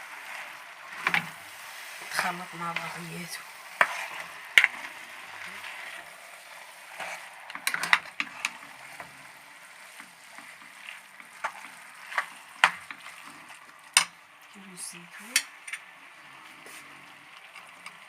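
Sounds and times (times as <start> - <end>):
faint hiss: 0.0 - 17.3
spoon knocking and scraping a pan: 1.0 - 1.4, 3.7 - 4.9, 7.0 - 9.1, 9.9 - 14.2.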